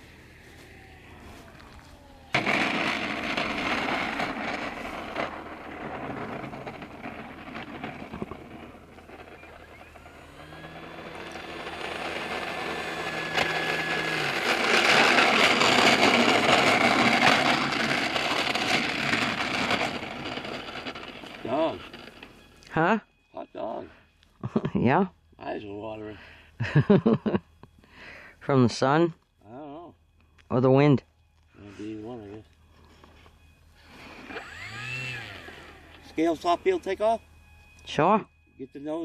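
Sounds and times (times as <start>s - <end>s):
model plane motor whine: 0.0s - 22.8s, 31.4s - 39.0s.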